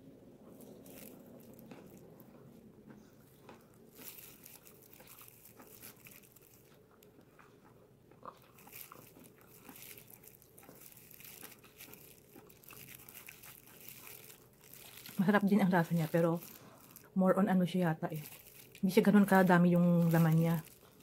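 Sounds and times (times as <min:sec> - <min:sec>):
chewing crispy fried chicken: 0:00.4 - 0:21.0.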